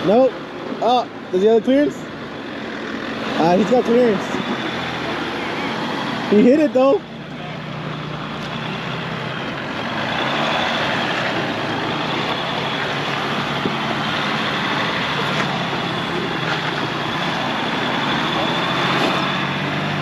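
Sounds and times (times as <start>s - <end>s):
constant rushing noise: 0.0s - 20.0s
off-road vehicle engine running: 0.0s - 20.0s.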